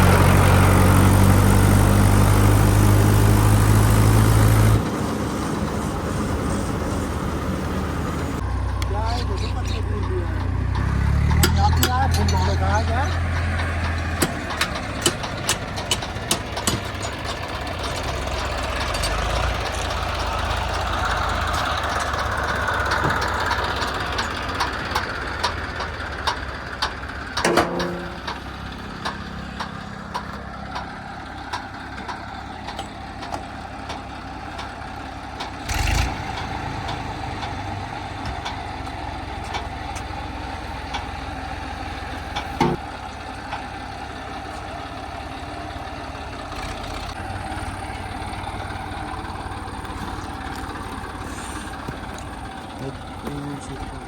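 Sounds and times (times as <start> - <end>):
diesel engines of heavy machinery: 0.0 - 54.0
clicks and clanks: 9.2 - 34.8, 40.8 - 41.2, 42.1 - 42.8.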